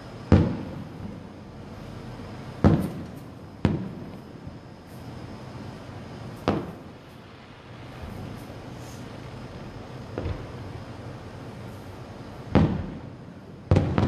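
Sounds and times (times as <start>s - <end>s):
firework booms: 0.3s - 1.3s, 2.6s - 4.2s, 6.4s - 7.0s, 10.1s - 10.7s, 12.4s - 14.0s.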